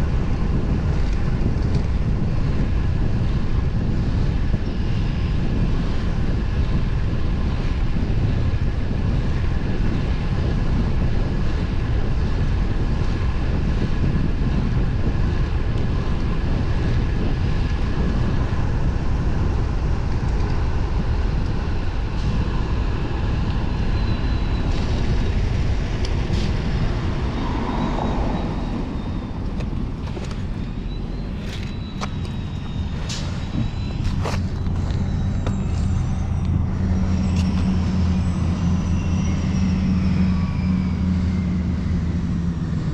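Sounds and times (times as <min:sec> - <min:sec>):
bike road noise: 0:00.0 - 0:42.9
wind rushing over microphone: 0:00.0 - 0:42.9.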